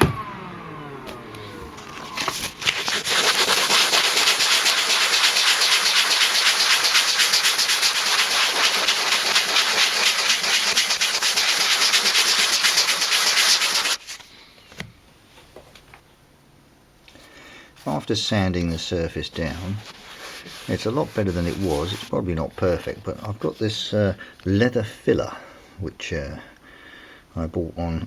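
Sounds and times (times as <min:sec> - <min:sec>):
sandpaper scraping leather: 0:01.4 - 0:14.2, 0:17.8 - 0:22.9.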